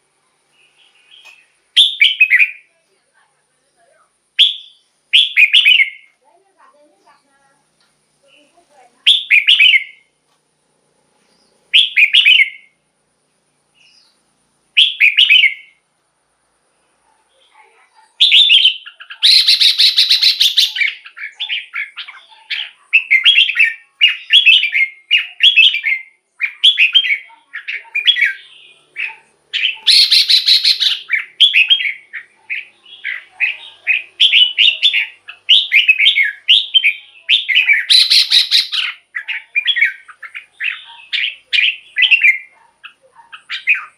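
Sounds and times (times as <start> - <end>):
bird singing whistled phrases: 1.0 - 2.7, 4.4 - 6.1, 9.0 - 10.1, 11.7 - 12.8, 14.8 - 15.8, 18.2 - 42.5.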